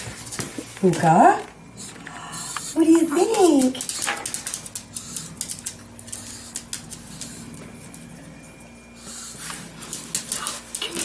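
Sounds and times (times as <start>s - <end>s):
faint steady hum: 0.0s - 11.0s
dog claws clicking on hard floor: 3.4s - 7.3s.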